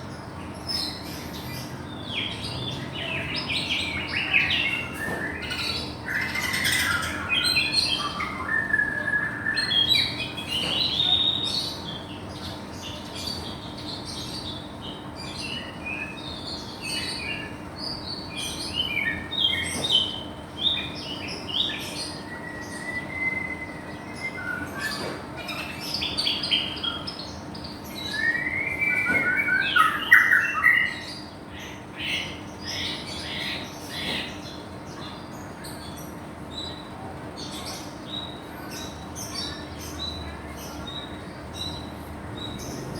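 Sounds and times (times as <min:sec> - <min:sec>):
songbird singing varied whistles: 0:22.2 - 0:25.2.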